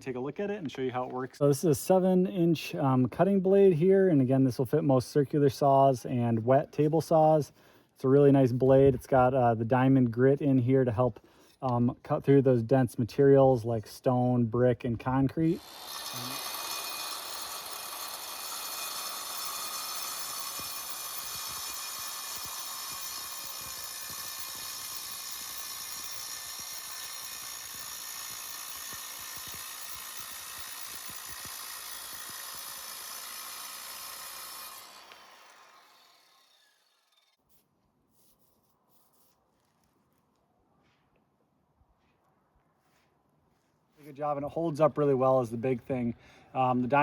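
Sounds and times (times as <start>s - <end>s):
power saw cutting masonry: 14.9s - 37.5s.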